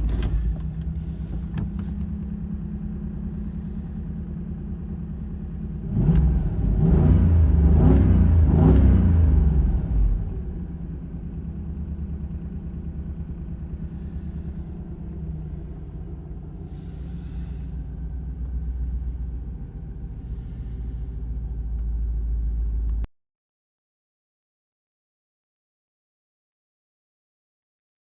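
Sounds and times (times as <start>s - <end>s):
car engine idling: 0.0s - 23.1s.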